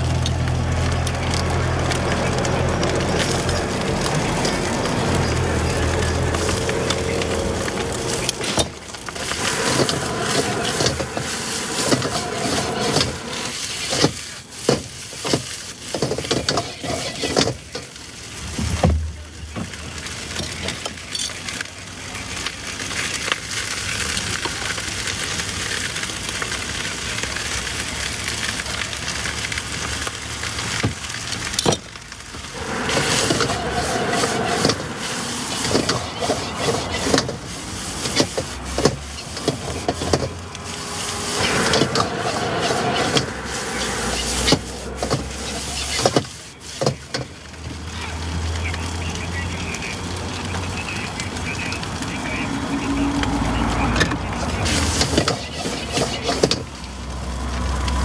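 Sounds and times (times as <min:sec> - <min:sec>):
noodles sizzling in wok: 0:00.0 - 0:49.0, 0:52.5 - 0:58.0
metal spatula scraping and clacking: 0:07.7 - 0:17.8, 0:54.8 - 0:56.6.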